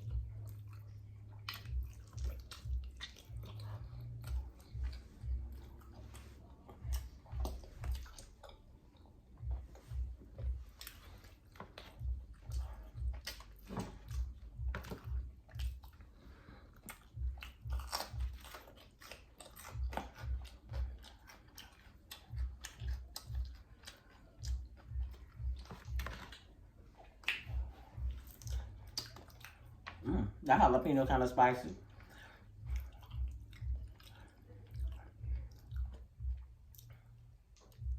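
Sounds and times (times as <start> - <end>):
wet mouth clicks: 0.0 - 16.1, 16.7 - 30.4
chewing and biting ribs: 0.0 - 37.9.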